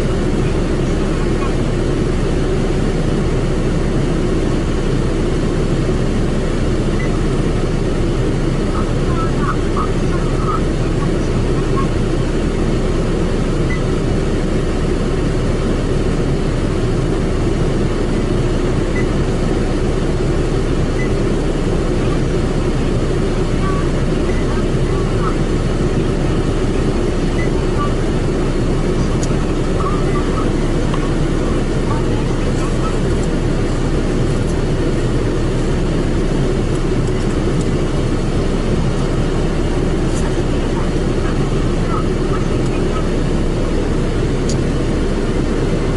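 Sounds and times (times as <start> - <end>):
car wash machine rumbling: 0.0 - 45.9.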